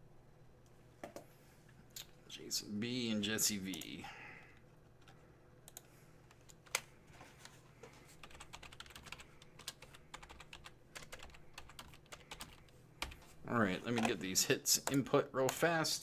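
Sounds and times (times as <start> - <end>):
typing on a computer keyboard: 5.0 - 6.9, 8.2 - 13.3, 13.9 - 14.2, 14.8 - 15.7.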